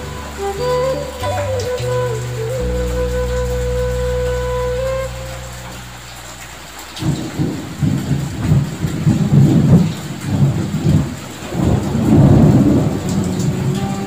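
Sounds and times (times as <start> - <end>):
heavy rain: 0.0 - 14.0
thunder rumbling: 7.0 - 14.0.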